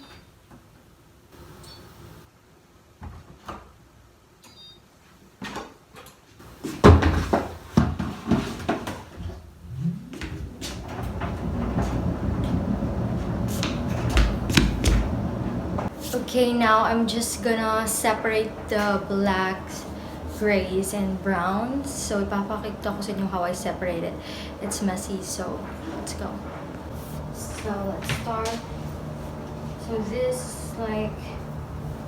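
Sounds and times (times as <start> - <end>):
dryer motor humming and tumbling: 1.4 - 2.3, 9.2 - 32.0.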